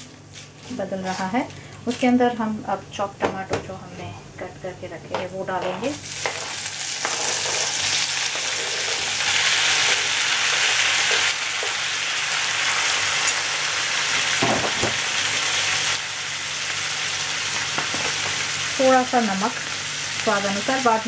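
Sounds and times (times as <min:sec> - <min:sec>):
tomatoes sizzling in hot oil: 0:05.4 - 0:21.0.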